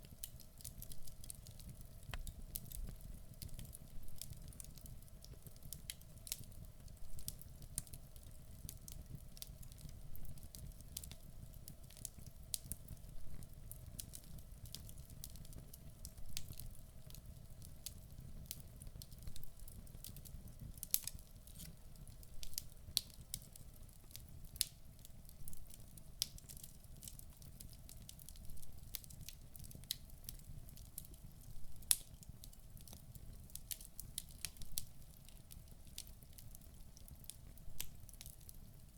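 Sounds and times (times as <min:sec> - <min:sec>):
low rumble of flames: 0:00.0 - 0:26.4
logs crackling and popping: 0:00.0 - 0:38.6.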